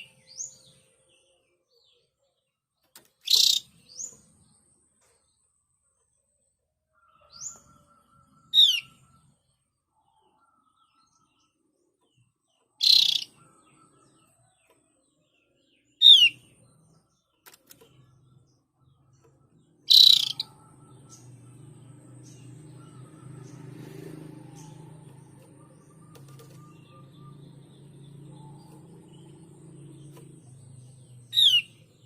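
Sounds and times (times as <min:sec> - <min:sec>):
bird harsh buzzy calls: 0:03.2 - 0:04.1, 0:12.8 - 0:13.4, 0:19.9 - 0:32.0.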